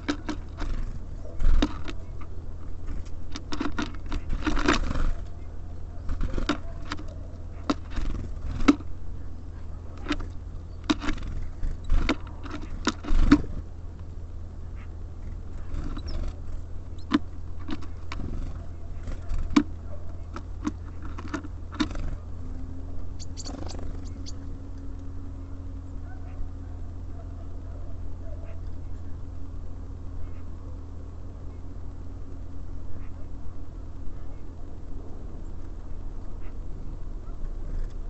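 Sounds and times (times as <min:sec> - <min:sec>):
birds pecking at feeder: 0:00.0 - 0:25.4
low hum: 0:00.0 - 0:38.0.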